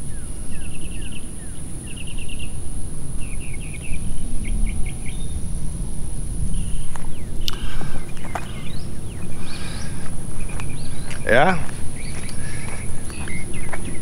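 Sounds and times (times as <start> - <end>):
birds chirping: 0.0 - 14.0
high-pitched insect drone: 0.0 - 14.0
wind rumble on microphone: 0.0 - 14.0.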